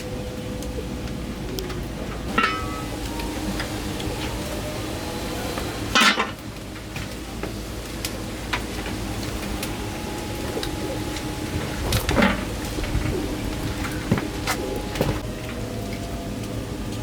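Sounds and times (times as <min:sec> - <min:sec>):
steady low hum: 0:00.0 - 0:16.9
kitchen utensils and dishes clinking: 0:02.3 - 0:06.4.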